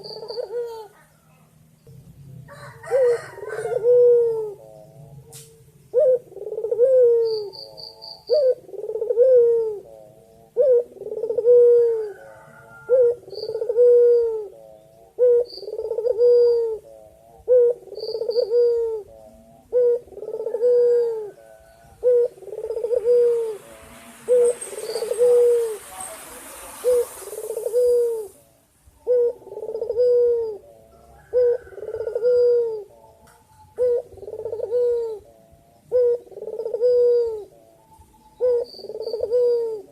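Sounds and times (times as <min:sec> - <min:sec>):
small birds chirping: 0:00.0 - 0:02.5, 0:04.4 - 0:11.4, 0:13.2 - 0:39.9
dove cooing: 0:00.0 - 0:39.9
hiss: 0:23.1 - 0:28.4.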